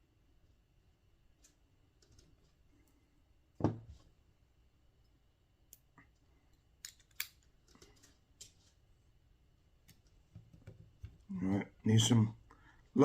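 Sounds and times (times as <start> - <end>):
object set down with thud: 3.6 - 4.0.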